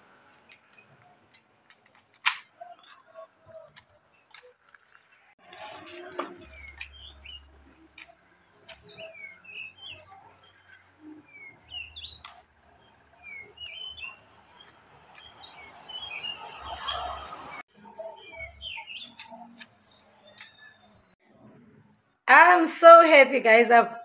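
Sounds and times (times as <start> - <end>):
sharp clicks: 0.5 - 3.0
small birds chirping: 2.5 - 21.2.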